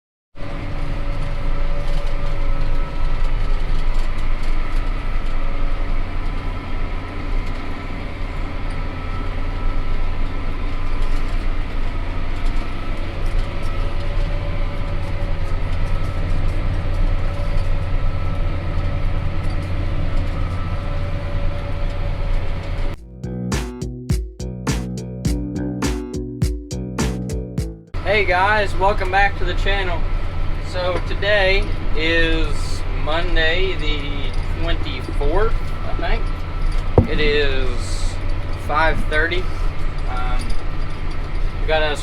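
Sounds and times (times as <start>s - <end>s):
tractor engine drone: 0.4s - 23.8s, 27.9s - 42.0s
steady whine: 28.0s - 42.0s.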